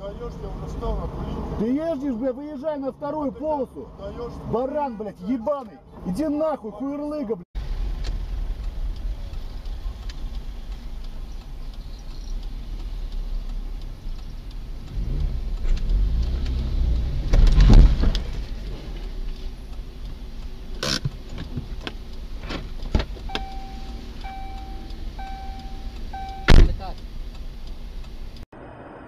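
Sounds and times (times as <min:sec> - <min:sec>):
car engine and road noise: 0:00.0 - 0:29.0
sharp clicks: 0:08.0 - 0:28.4.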